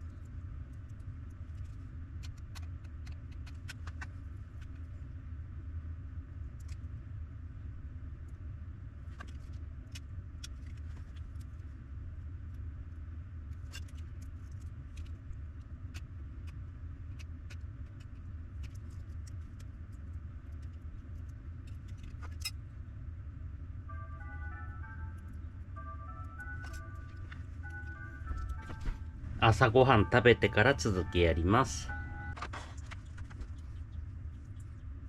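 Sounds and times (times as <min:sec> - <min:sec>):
low rumble: 0:19.3 - 0:35.0.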